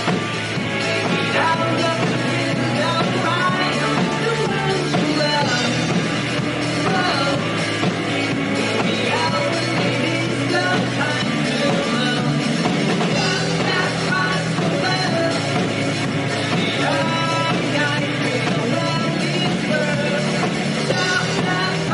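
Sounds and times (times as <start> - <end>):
rock band playing: 0.0 - 21.9
person singing: 0.8 - 21.9.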